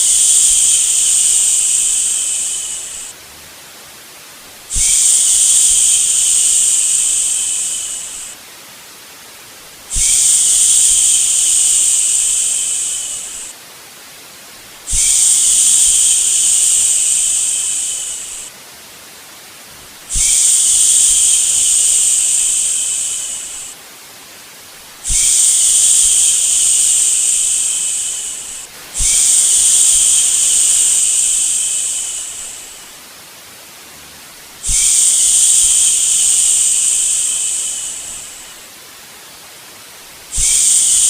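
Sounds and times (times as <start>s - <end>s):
faint steady hiss: 0.0s - 41.0s
person shushing: 25.1s - 32.9s, 34.0s - 38.6s.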